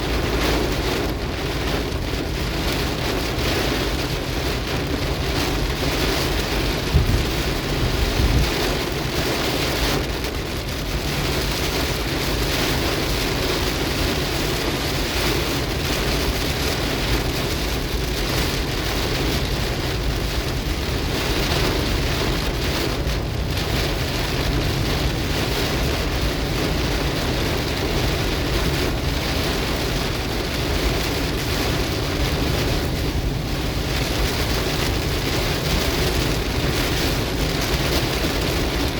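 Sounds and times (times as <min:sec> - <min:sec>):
heavy rain on car roof: 0:00.0 - 0:38.9.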